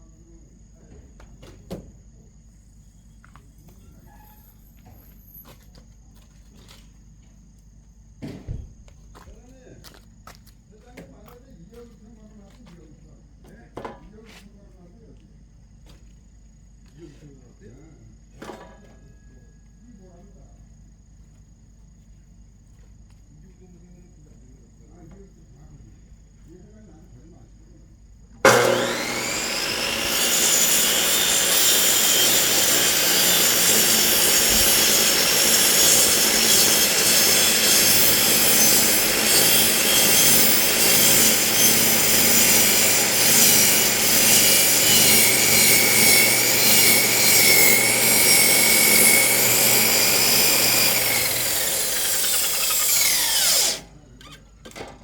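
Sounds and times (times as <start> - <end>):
saw spinning down: 28.4 - 53.8
chop saw cutting log: 28.4 - 53.9.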